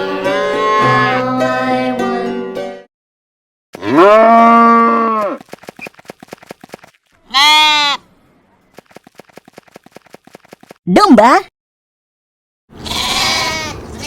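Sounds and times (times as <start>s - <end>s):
sheep bleating: 3.8s - 5.4s, 7.2s - 8.0s, 12.8s - 13.8s.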